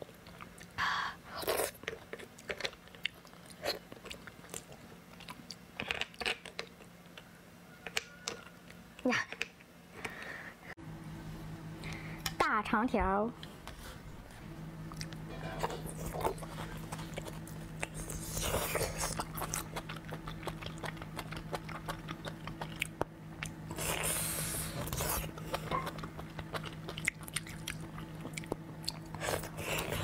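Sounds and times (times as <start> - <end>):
steady low hum: 8.6 - 30.0
wet chewing of meat: 15.8 - 30.0.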